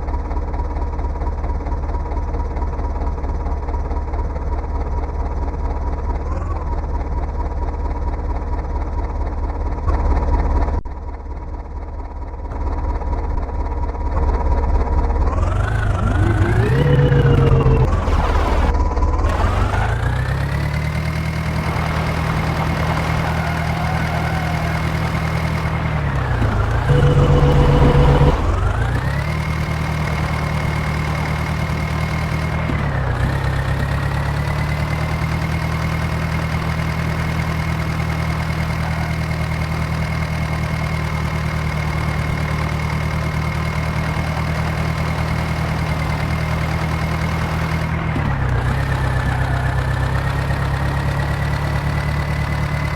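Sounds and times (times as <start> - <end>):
diesel engine revving: 15.2 - 52.9
steady tone: 15.8 - 18.7, 23.6 - 32.4.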